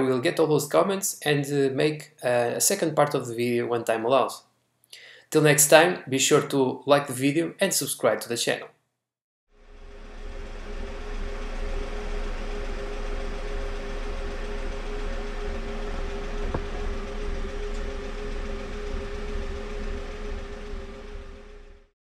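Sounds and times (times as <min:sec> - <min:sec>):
car engine idling: 0:09.6 - 0:21.9.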